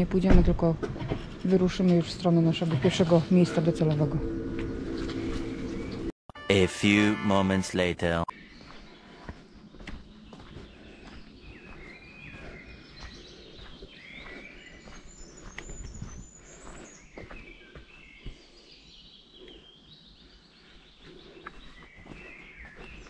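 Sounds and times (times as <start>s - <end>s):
songbirds singing: 8.3s - 23.0s.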